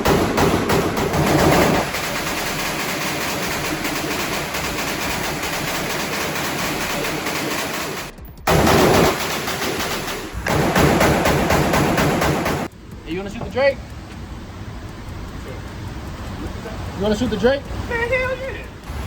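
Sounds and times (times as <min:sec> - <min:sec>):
rapid gunshots: 0:00.0 - 0:12.7.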